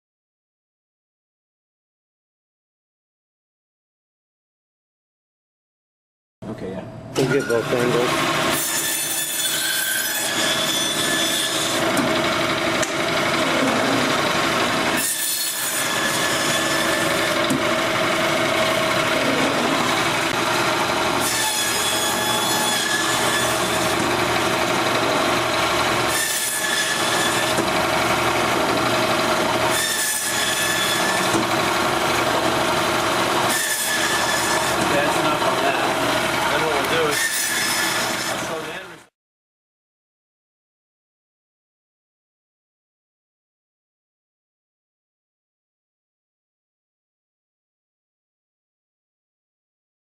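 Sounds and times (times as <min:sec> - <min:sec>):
band saw cutting through bone: 0:07.2 - 0:38.8.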